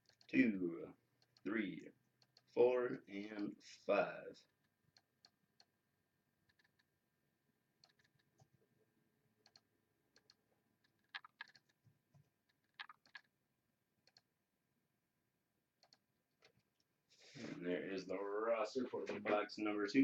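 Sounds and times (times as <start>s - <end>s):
mouse and keyboard clicks: 6.5s - 6.9s, 7.8s - 8.5s, 9.4s - 11.8s, 12.5s - 13.3s, 14.1s - 14.3s, 15.8s - 16.6s.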